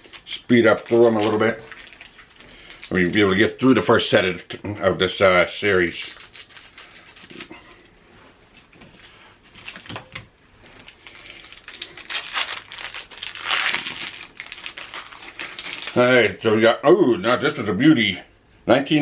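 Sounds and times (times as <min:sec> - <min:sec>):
card pack wrappers crinkling: 0:00.0 - 0:04.0, 0:05.1 - 0:07.5, 0:08.5 - 0:16.3.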